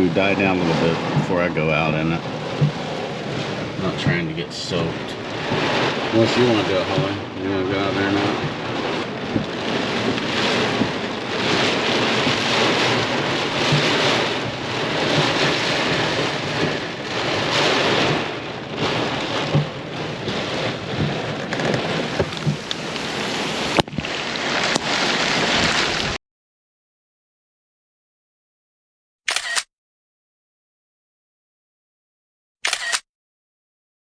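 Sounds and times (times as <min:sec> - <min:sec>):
raindrop ticks: 0:00.0 - 0:26.1
heavy rain pouring: 0:00.0 - 0:26.2.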